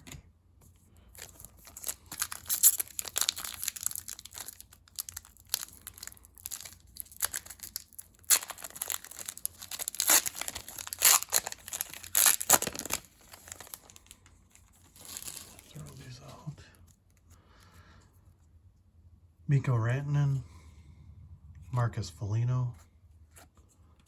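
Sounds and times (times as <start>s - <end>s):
card pack wrapper tearing and crinkling: 1.1s - 16.0s.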